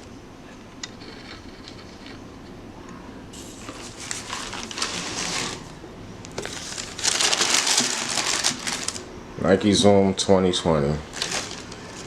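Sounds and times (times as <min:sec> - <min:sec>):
packaging rustling and crinkling: 0:03.4 - 0:09.1, 0:11.0 - 0:12.0.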